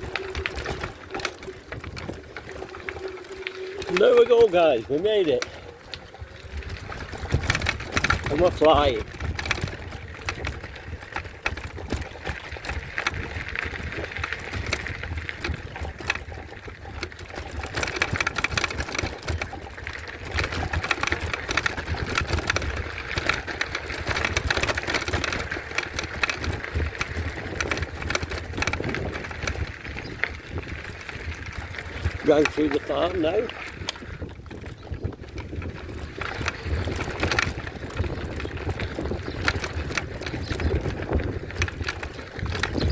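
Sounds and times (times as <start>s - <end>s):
bike rattling and clattering: 0.0s - 42.9s
tyre noise: 0.0s - 42.9s.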